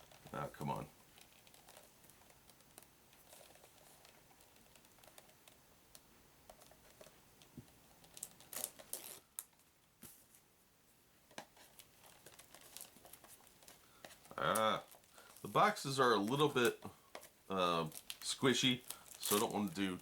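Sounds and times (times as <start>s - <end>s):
plastic shrink-wrap crinkling: 1.1s - 5.6s, 7.9s - 9.7s, 11.6s - 20.0s.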